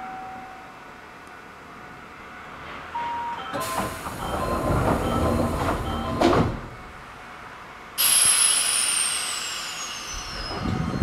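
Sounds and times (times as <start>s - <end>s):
train doors clunk shut: 2.6s - 7.0s, 10.1s - 11.0s
air brake hiss and whistle: 8.0s - 11.0s.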